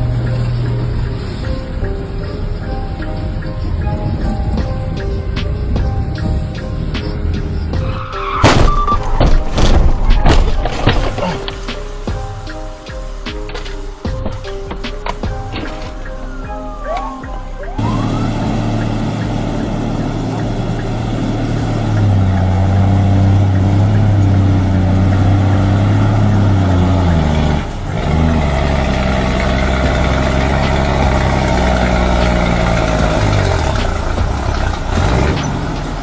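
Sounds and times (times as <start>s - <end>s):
heavy vehicle engine running: 17.8s - 36.0s.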